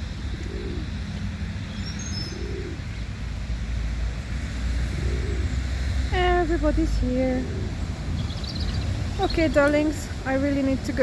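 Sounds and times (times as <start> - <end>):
low soft bird calls: 0.0 - 3.3, 7.0 - 9.6.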